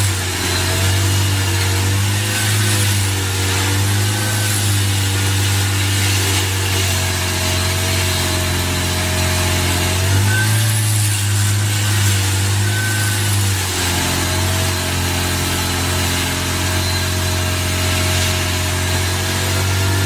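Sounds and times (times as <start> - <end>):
heavy machine engine running: 0.0 - 20.0.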